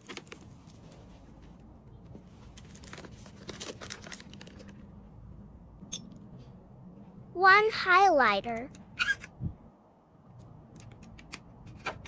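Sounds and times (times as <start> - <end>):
packaging rustling and crinkling: 2.2 - 4.9.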